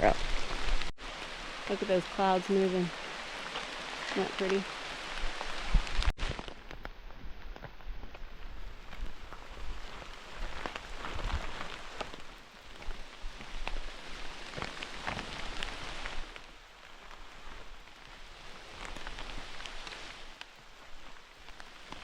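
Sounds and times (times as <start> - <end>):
rain falling: 0.0 - 22.0
raindrops ticking close by: 0.0 - 22.0.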